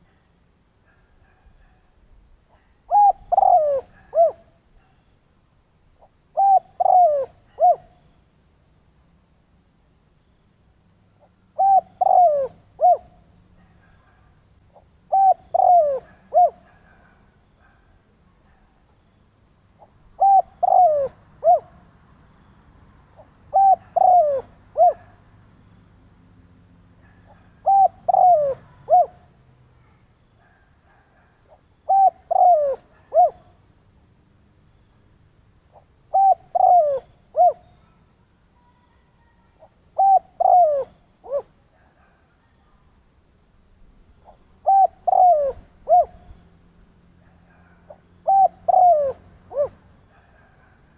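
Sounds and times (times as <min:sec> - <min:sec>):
dove cooing: 0:02.5 - 0:04.6, 0:06.4 - 0:08.0, 0:11.6 - 0:13.2, 0:15.1 - 0:17.8, 0:20.2 - 0:21.8, 0:23.2 - 0:25.1, 0:27.0 - 0:29.3, 0:30.4 - 0:33.5, 0:35.7 - 0:38.0, 0:38.9 - 0:42.1, 0:44.2 - 0:46.3, 0:47.5 - 0:50.8.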